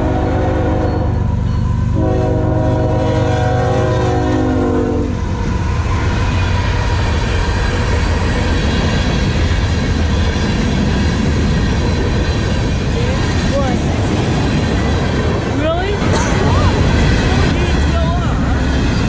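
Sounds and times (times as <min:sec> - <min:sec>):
train horn: 0:00.0 - 0:01.2, 0:01.9 - 0:05.2
train rumbling past: 0:00.0 - 0:19.0.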